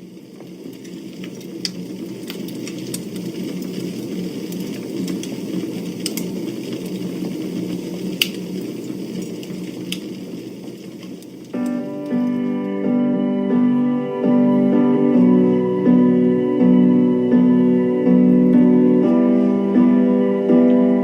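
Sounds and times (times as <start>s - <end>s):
burning wood crackling and popping: 0.0s - 13.0s
campfire hissing: 0.0s - 21.0s.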